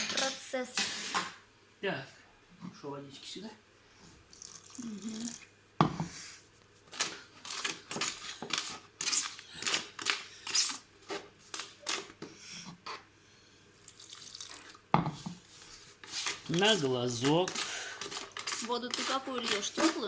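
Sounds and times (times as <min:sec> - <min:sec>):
hand tool scraping container: 0:16.0 - 0:20.0.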